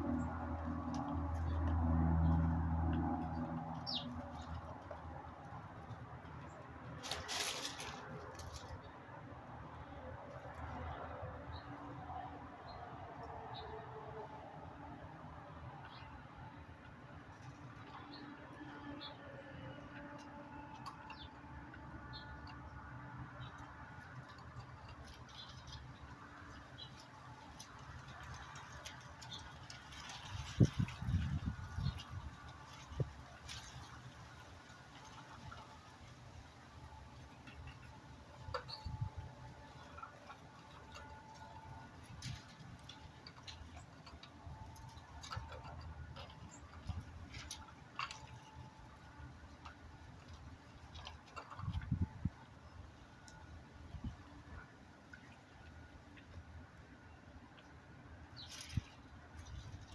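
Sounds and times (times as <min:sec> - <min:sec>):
low steady rumble: 0:00.0 - 0:07.1
birds clicking and tapping: 0:00.0 - 0:09.0, 0:15.6 - 0:54.4.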